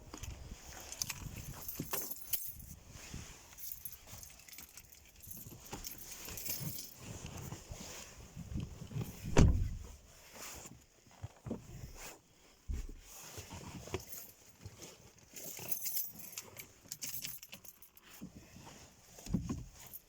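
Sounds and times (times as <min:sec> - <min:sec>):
car keys jangling: 0:00.2 - 0:02.8, 0:03.5 - 0:07.0, 0:15.1 - 0:18.0
low thump: 0:09.2 - 0:09.9.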